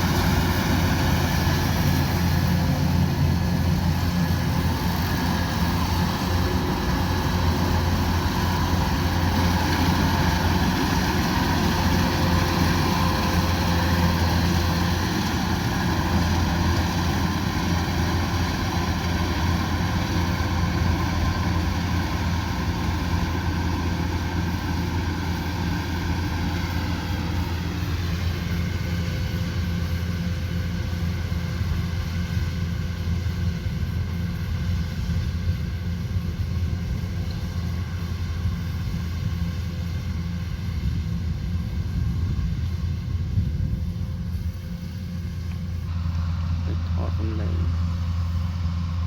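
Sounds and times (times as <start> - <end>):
machinery whirring: 0.0 - 30.3
low engine drone: 0.0 - 49.0.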